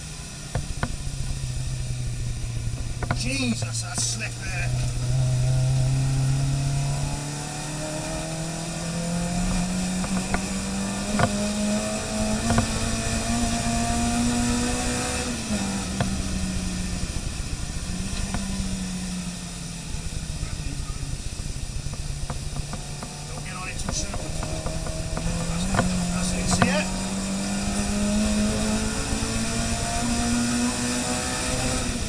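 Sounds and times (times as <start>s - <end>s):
racing car engine accelerating: 0.0s - 32.0s.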